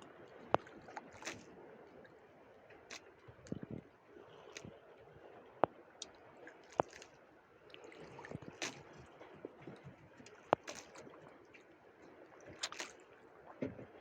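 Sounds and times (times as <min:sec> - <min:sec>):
water lapping against boat hull: 0:00.0 - 0:14.0.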